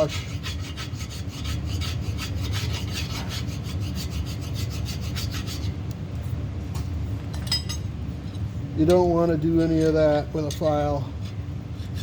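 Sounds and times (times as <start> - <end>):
hand file rasping on metal: 0.0 - 5.7, 11.3 - 12.0.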